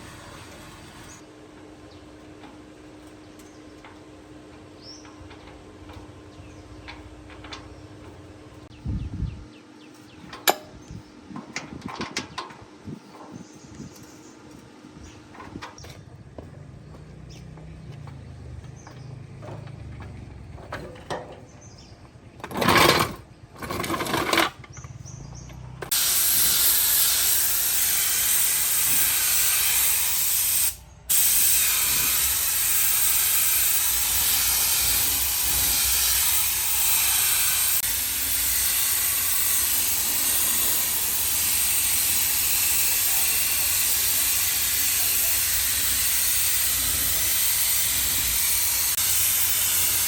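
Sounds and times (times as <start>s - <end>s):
spraying hiss: 25.9s - 50.0s.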